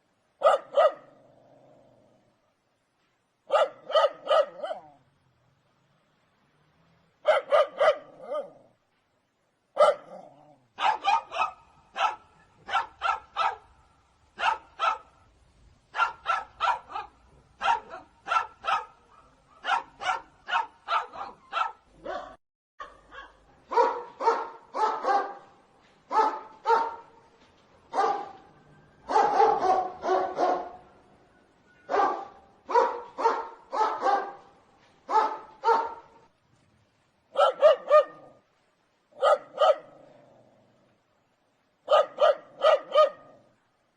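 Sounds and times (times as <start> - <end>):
dog barking: 0.4 - 1.1, 3.5 - 5.0, 7.2 - 8.6, 9.8 - 13.8, 14.4 - 15.2, 15.9 - 25.5, 26.1 - 27.2, 27.9 - 28.4, 29.1 - 30.8, 31.9 - 34.5, 35.1 - 36.2, 37.3 - 38.4, 39.2 - 40.0, 41.8 - 43.4.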